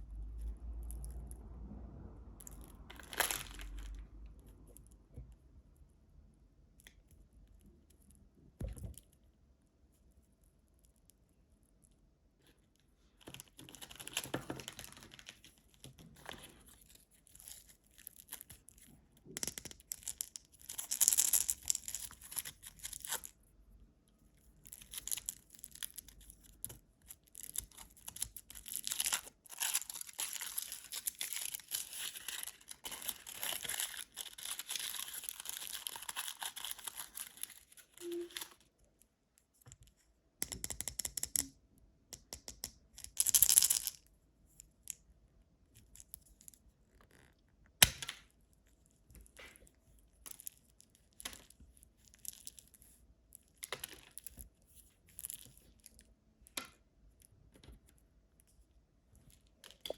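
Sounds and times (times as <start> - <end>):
snack wrapper crinkling: 2.9 - 4.0, 27.1 - 38.6.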